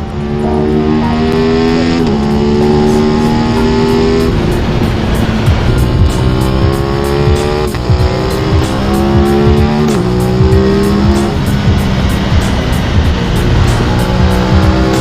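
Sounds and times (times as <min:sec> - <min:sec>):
motorcycle engine accelerating: 0:00.0 - 0:15.0
road rumble: 0:00.0 - 0:15.0.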